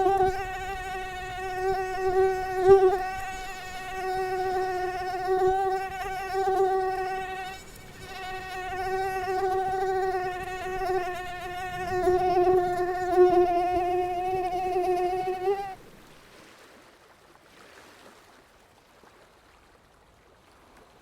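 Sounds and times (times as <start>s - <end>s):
mosquito whining: 0.0s - 15.8s.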